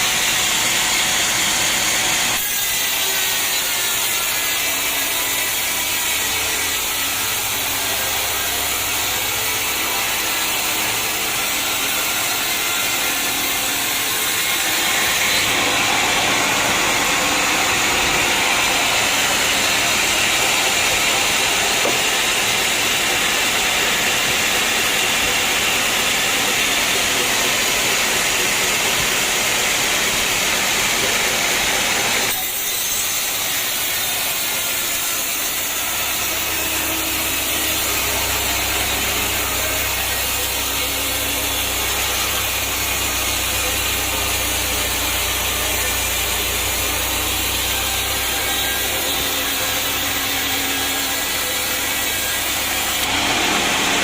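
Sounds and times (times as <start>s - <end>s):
sawmill saw cutting log: 0.0s - 54.0s.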